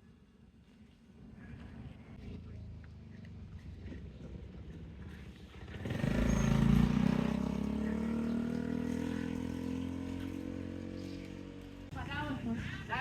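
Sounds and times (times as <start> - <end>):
vehicle engine passing: 5.0 - 13.0.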